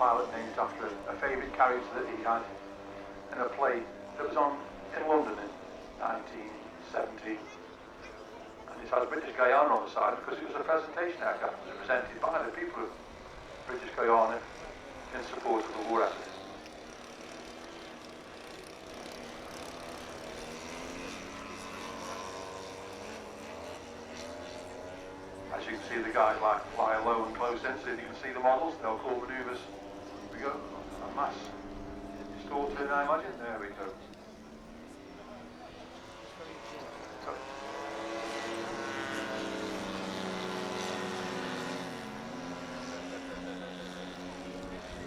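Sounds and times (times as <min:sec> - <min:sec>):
model aircraft propeller engines: 0:00.0 - 0:45.0.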